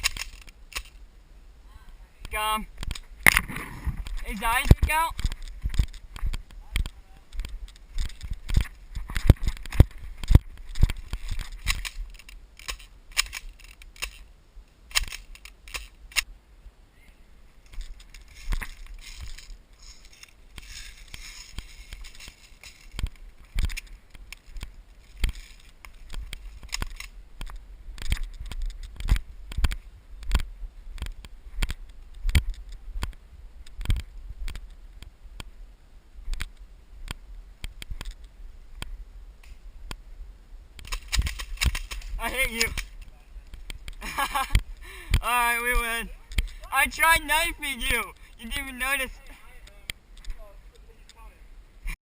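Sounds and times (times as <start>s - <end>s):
low rumble of handling and wind: 0.0s - 52.0s
footsteps crunching: 17.6s - 29.9s.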